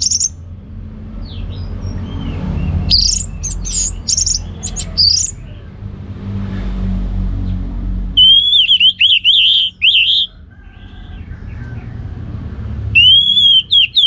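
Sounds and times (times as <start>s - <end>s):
thrush singing whistled notes: 0.0s - 0.4s, 1.3s - 5.4s, 8.2s - 10.3s, 13.0s - 14.0s.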